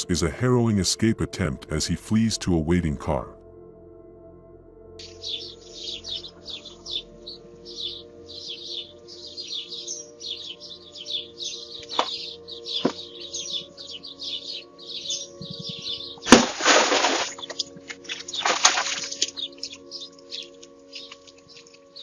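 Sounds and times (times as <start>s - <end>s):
faint background music drone: 0.0s - 22.0s
birds chirping: 5.0s - 22.0s.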